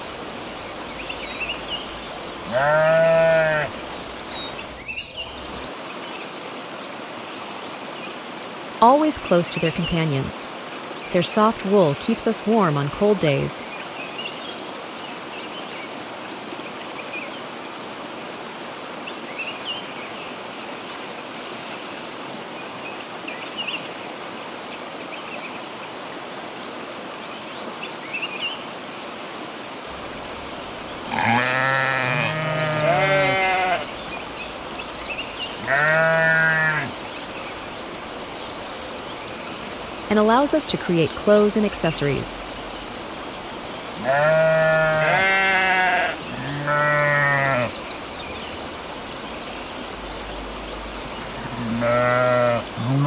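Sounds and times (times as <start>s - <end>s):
outdoor background hiss: 0.0s - 53.0s
sheep bleating: 2.5s - 3.7s, 31.1s - 33.9s, 35.6s - 36.9s, 44.0s - 47.8s, 51.3s - 53.0s.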